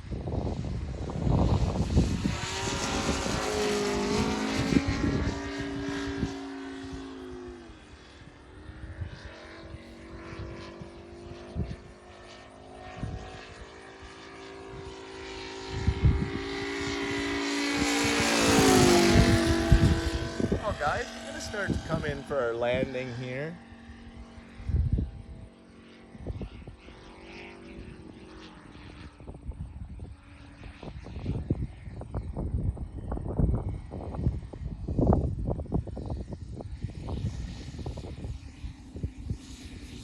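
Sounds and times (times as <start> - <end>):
model plane engine droning: 0.0 - 40.0.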